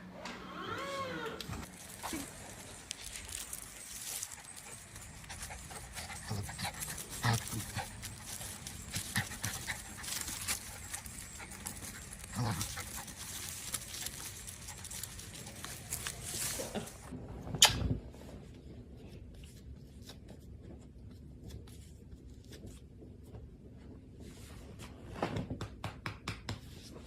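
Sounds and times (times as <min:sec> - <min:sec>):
dog panting: 0:03.3 - 0:16.6.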